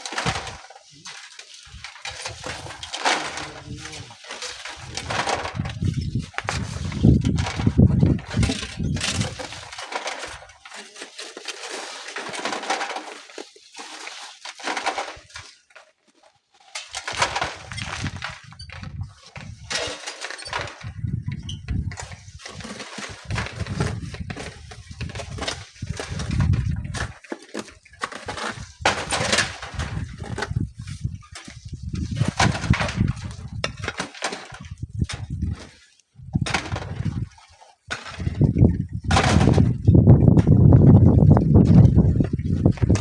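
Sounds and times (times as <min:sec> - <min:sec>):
sand and stones rattling: 0:00.0 - 0:43.0
wind buffeting microphone: 0:04.8 - 0:09.6, 0:17.3 - 0:19.7, 0:20.6 - 0:27.1, 0:28.5 - 0:33.9, 0:34.6 - 0:37.4, 0:38.0 - 0:43.0.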